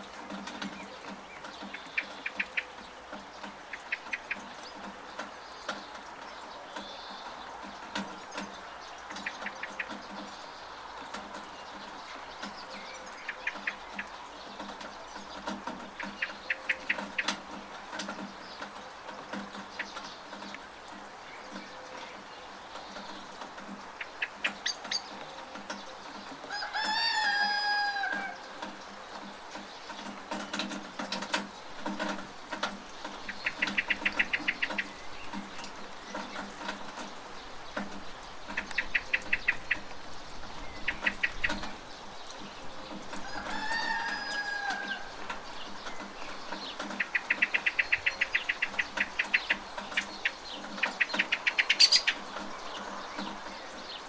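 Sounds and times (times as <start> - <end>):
rain hissing: 0.0 - 54.0
rapid clicks and sharp ticks: 11.0 - 21.7, 28.2 - 40.2
rooster crowing: 26.5 - 28.5, 43.2 - 45.2.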